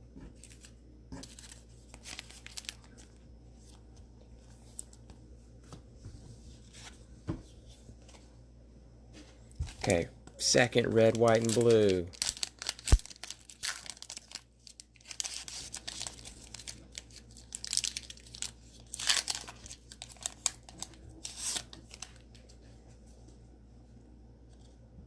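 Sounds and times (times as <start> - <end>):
cellophane wrapper crinkling and tearing: 0.4 - 3.7, 9.7 - 22.4.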